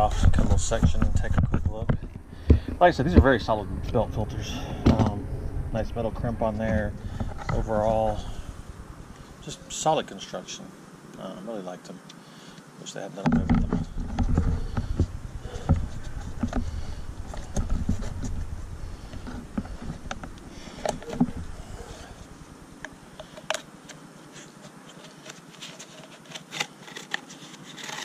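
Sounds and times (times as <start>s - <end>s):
low rumble: 0.0s - 10.3s, 13.6s - 23.2s.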